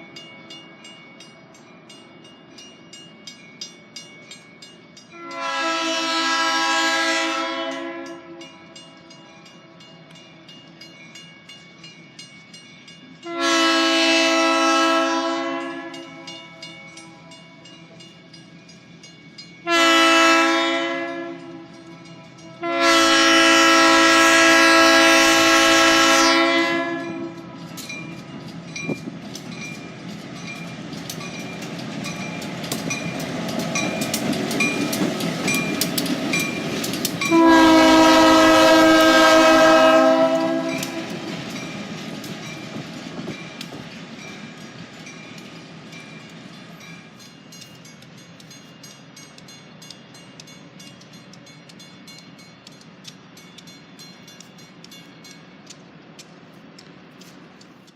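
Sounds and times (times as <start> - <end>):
locomotive air horn blasts: 5.2 - 8.7, 13.3 - 16.4, 19.6 - 27.6, 37.2 - 41.2
wheels clicking over rail joints: 23.1 - 57.9.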